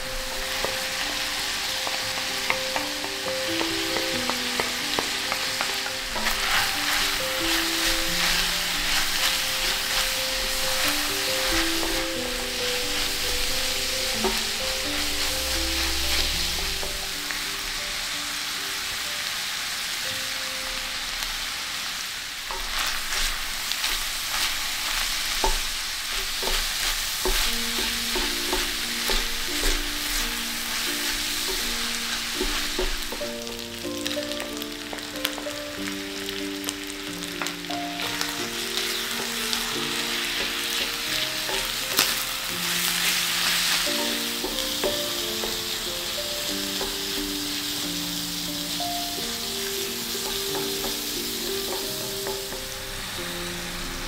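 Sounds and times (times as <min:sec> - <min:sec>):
wooden spatula scraping: 0:00.0 - 0:17.2, 0:22.5 - 0:33.8, 0:38.2 - 0:47.7
food sizzling in a skillet: 0:00.0 - 0:54.0.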